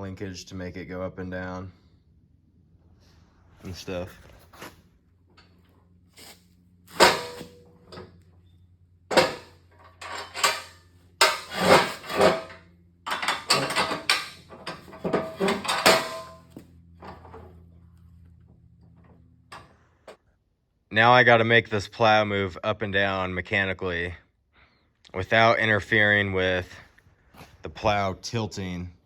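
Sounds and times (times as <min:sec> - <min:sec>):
faint low hum: 0:00.0 - 0:29.0
metal parts clanking: 0:06.9 - 0:08.2, 0:09.1 - 0:17.7.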